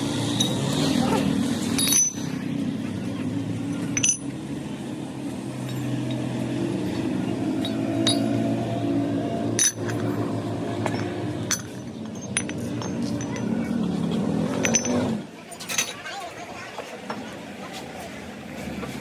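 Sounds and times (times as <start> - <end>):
metal clinks: 0.3 - 0.9, 1.6 - 2.5, 3.7 - 4.4, 5.6 - 8.8, 9.6 - 10.2, 10.8 - 16.0.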